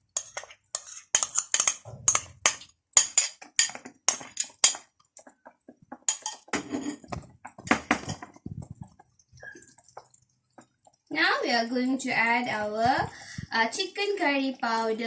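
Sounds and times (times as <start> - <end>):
utensil scraping a pan: 0.0 - 4.9, 5.9 - 8.5.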